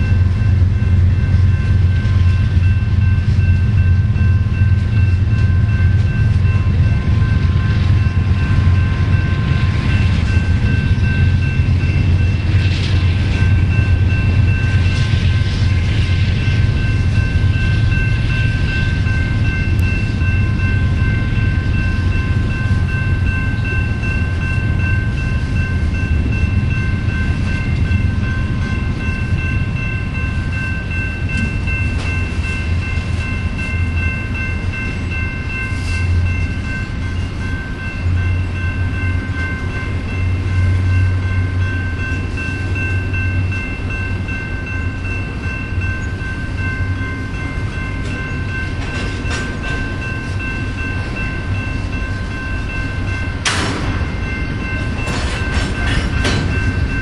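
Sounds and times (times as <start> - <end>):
freight train rumbling past: 0.0 - 57.0
high-pitched ringing: 0.0 - 57.0.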